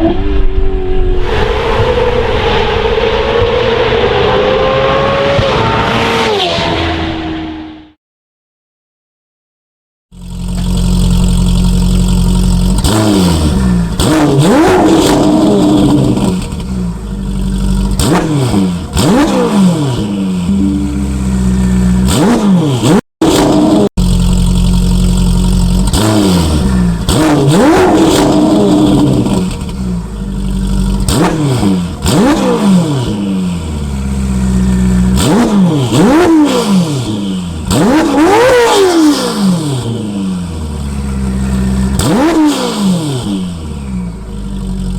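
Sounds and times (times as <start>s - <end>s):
car engine revving hard: 0.0s - 7.8s, 10.6s - 16.6s, 17.6s - 29.8s, 30.6s - 40.6s, 41.2s - 43.6s.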